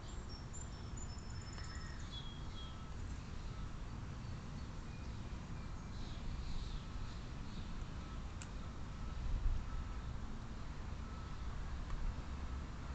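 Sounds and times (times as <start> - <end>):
small birds chirping: 0.0 - 8.2.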